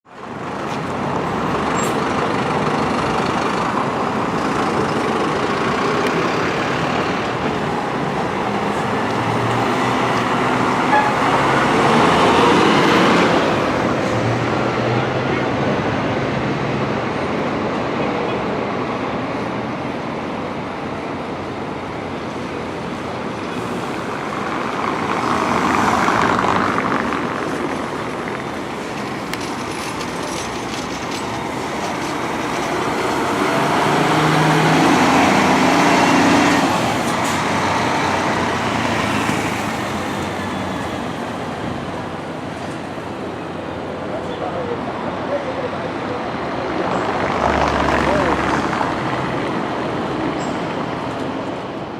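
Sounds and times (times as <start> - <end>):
road traffic: 0.0 - 51.9
heavy vehicles passing: 0.1 - 51.9.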